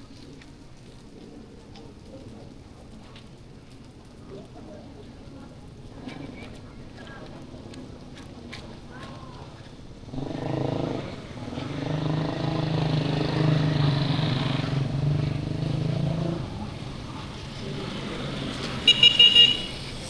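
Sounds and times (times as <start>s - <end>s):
vehicle engine passing: 10.1s - 20.0s
vehicle horn short beeps: 18.8s - 19.8s.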